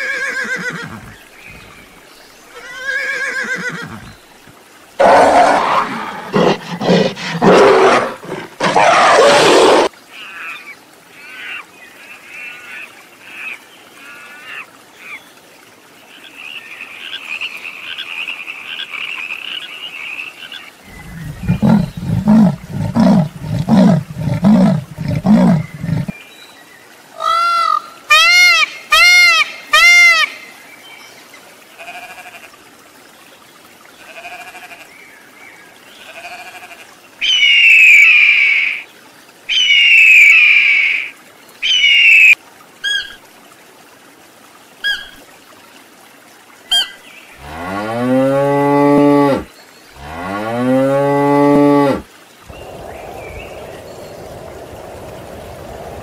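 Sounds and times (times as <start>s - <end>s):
leopard rasping call: 5.0s - 9.9s, 20.9s - 26.1s.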